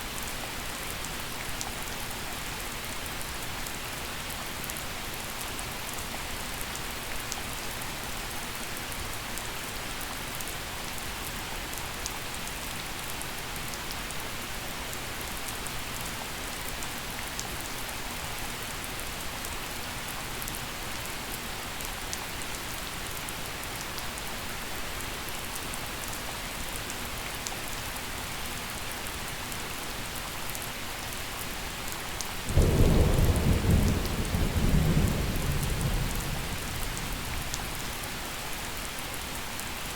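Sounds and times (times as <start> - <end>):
gentle rain falling: 0.0 - 39.9
thunder rumble: 32.5 - 37.9.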